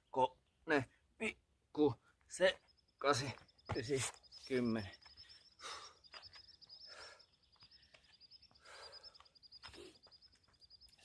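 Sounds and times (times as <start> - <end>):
insects chirping: 1.8 - 11.0
man breathing hard: 5.4 - 10.2.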